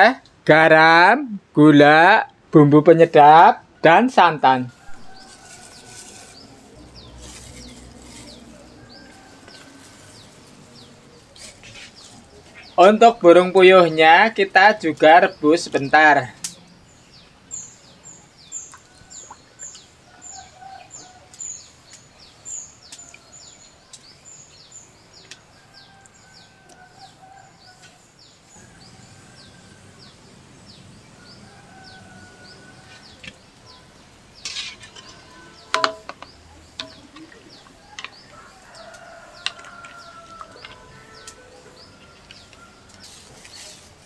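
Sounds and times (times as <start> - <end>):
chickens calling: 4.7 - 24.3, 25.1 - 44.0
small bird chirping: 4.7 - 43.7
sharp knocks: 35.7 - 37.0.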